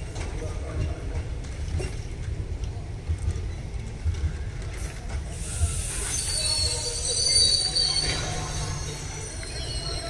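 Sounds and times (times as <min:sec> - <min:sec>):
train wheels rumbling: 0:00.0 - 0:10.0
high-pitched wheel squeal and hiss: 0:05.4 - 0:10.0.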